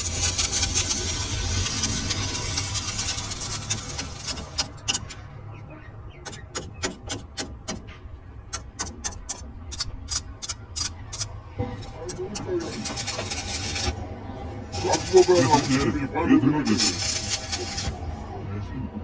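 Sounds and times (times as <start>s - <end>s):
workshop machinery humming: 0.0s - 18.7s
sharp metallic ticks: 8.5s - 11.4s.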